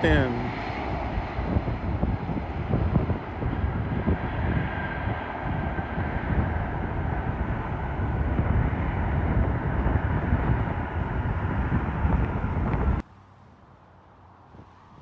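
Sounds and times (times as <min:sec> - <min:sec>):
jet engines rumbling: 0:00.0 - 0:13.0
wind buffeting microphone: 0:00.0 - 0:13.0.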